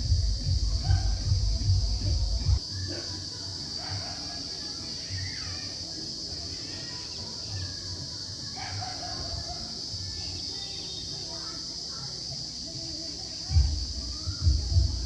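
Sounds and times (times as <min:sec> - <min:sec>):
distant dogs barking: 0:00.0 - 0:03.0, 0:03.7 - 0:04.7, 0:08.5 - 0:09.9.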